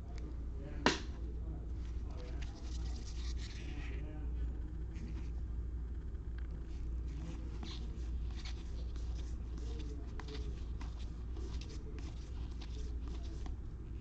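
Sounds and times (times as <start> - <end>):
steady low hum: 0.0 - 14.0
cards flipped through by hand: 7.1 - 13.6.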